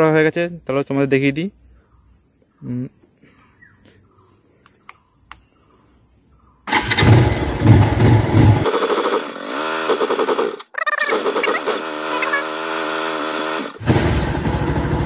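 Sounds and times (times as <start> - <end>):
motorcycle engine cranking: 6.7 - 15.0.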